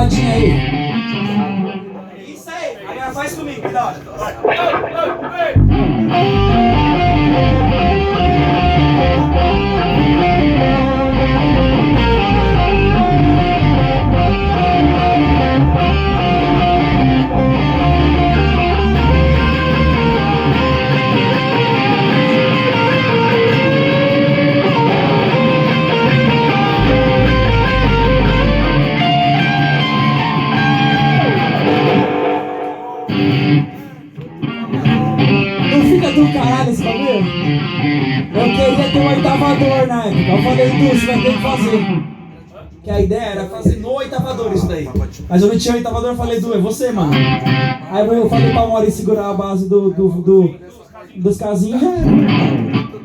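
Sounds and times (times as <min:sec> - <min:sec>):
bass guitar: 0:00.0 - 0:01.9, 0:04.4 - 0:42.2, 0:51.9 - 0:53.0
electric guitars playing: 0:00.0 - 0:02.1, 0:03.7 - 0:42.5, 0:46.8 - 0:49.1, 0:51.9 - 0:53.0.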